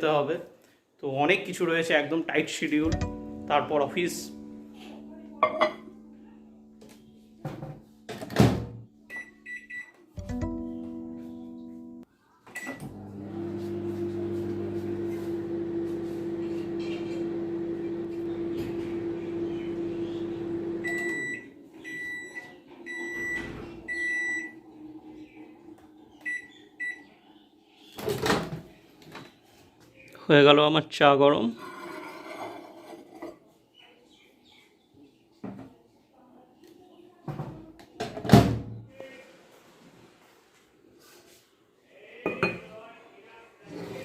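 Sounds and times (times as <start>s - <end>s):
microwave done beeps: 9.1s - 10.6s, 12.5s - 13.0s, 18.4s - 24.6s, 26.2s - 27.1s
microwave keypad beeps: 9.1s - 10.6s, 20.8s - 24.6s
microwave humming: 12.7s - 27.1s.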